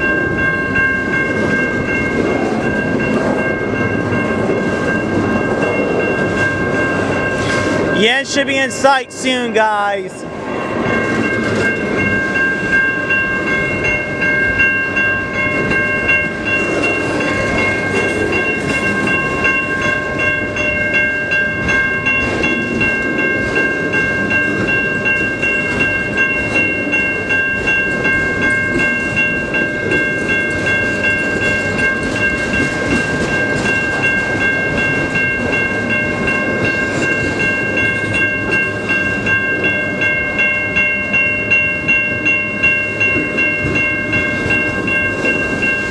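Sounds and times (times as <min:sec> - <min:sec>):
freight train rumbling: 0:00.0 - 0:45.9
high steady tones: 0:00.0 - 0:45.9.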